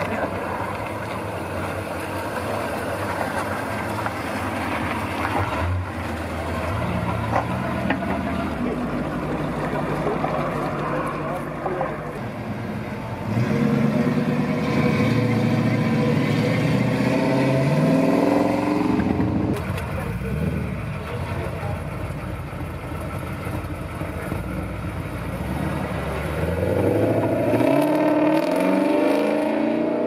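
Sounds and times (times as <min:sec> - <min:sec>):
low engine rumble: 0:00.0 - 0:16.9, 0:18.8 - 0:27.4
car engine revving up: 0:02.4 - 0:20.9, 0:24.0 - 0:30.0
car accelerating hard: 0:13.2 - 0:19.6, 0:24.1 - 0:30.0.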